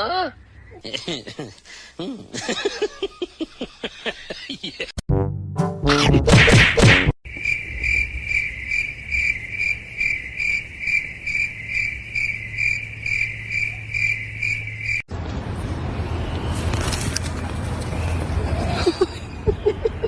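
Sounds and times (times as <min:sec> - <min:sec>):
insect chirping: 0:07.3 - 0:15.1.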